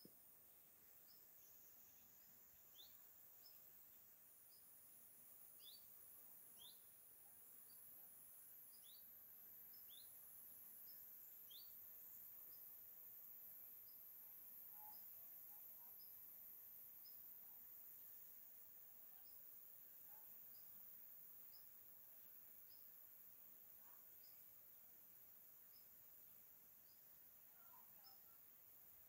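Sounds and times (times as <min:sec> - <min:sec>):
bird chirping: 0:01.0 - 0:04.7, 0:05.4 - 0:07.9, 0:08.7 - 0:09.1, 0:09.7 - 0:10.2, 0:10.8 - 0:11.8, 0:14.6 - 0:16.2, 0:26.8 - 0:28.4
high-pitched insect buzz: 0:06.5 - 0:19.4.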